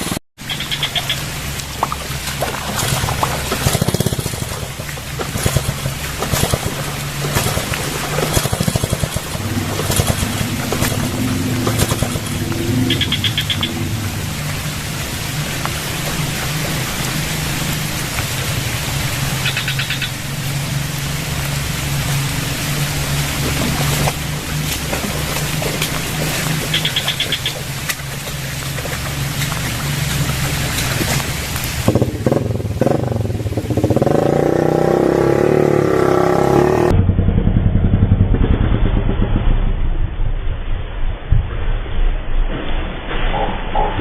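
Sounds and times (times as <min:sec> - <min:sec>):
rain hiss: 0:00.0 - 0:36.9
small motorcycle engine running: 0:02.7 - 0:18.4, 0:22.8 - 0:39.5
high-pitched chirps: 0:10.4 - 0:14.0.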